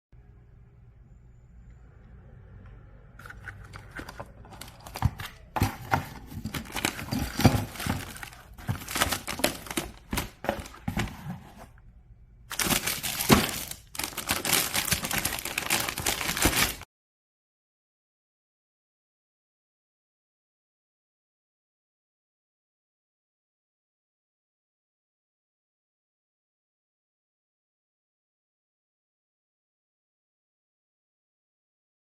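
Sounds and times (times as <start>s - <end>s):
plastic packaging crinkling: 3.2s - 11.6s, 12.5s - 16.8s.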